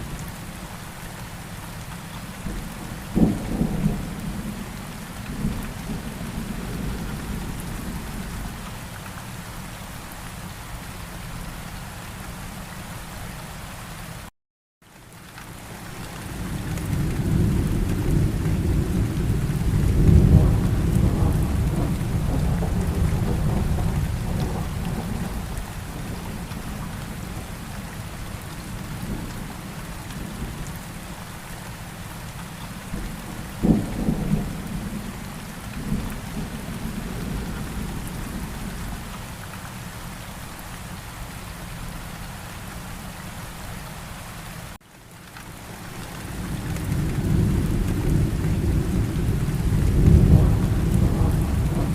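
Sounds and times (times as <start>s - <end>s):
steady rain: 0.0s - 51.9s
rolling thunder: 16.8s - 27.3s, 32.9s - 39.0s, 46.4s - 51.9s
sharp thunderclap: 46.9s - 51.9s.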